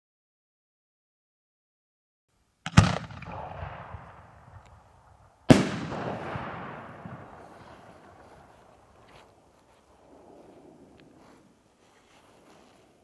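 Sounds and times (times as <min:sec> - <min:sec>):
firework mortar bang: 0:05.5 - 0:07.9.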